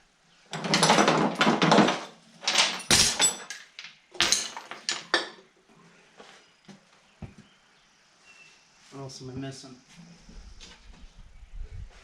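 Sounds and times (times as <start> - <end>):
metal tools clanking and rattling: 0.5 - 5.4.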